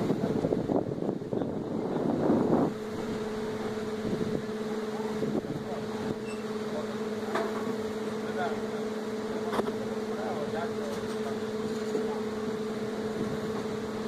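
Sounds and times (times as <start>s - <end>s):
wind rushing across microphone: 0.0s - 6.2s
train engine hum: 0.0s - 14.0s.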